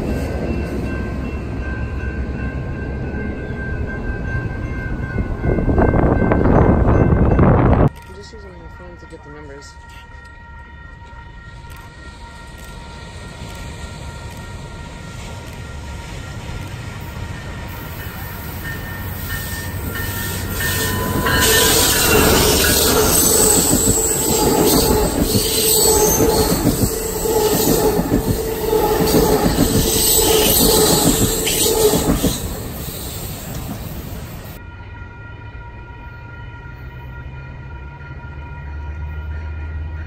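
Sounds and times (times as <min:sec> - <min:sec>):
train wheels rumbling and squealing: 0:00.0 - 0:34.7.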